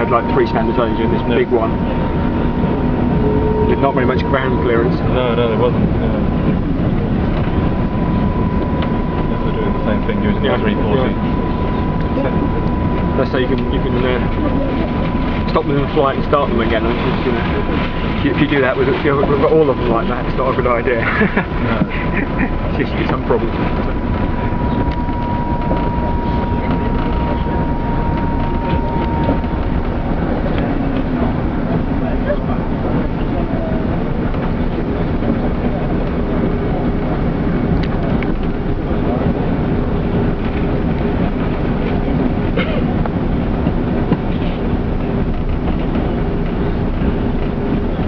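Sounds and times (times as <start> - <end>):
thin high tone: 0.0 - 31.4
aircraft cabin rumble: 0.0 - 48.0.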